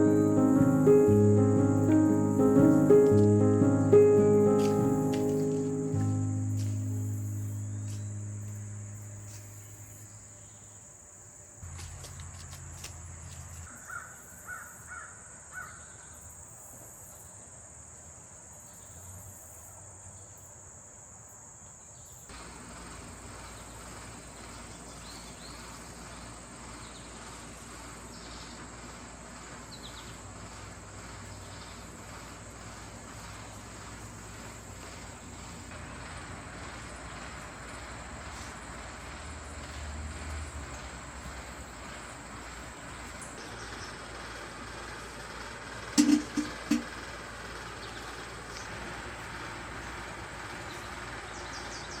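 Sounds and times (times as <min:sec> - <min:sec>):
background music: 0:00.0 - 0:09.8
insects droning: 0:00.0 - 0:52.0.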